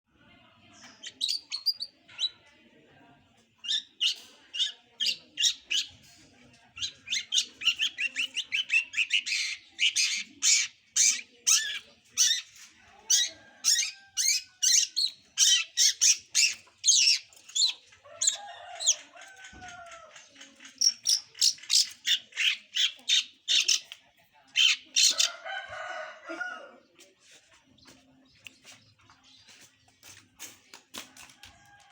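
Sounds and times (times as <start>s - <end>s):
bird harsh chattering: 6.8s - 19.0s, 20.1s - 25.3s.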